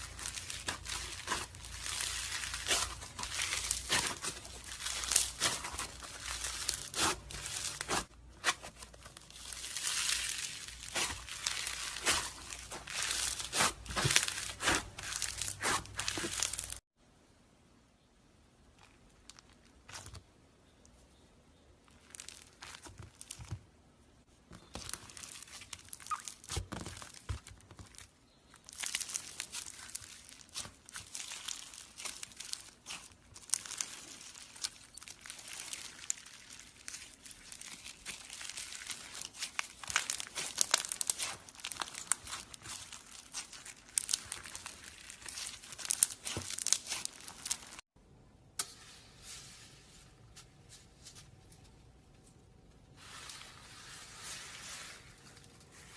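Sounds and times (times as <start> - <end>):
slime crackling under hands: 0.0 - 16.8, 21.9 - 23.5, 24.6 - 47.8
soft handling sounds: 48.6 - 55.9.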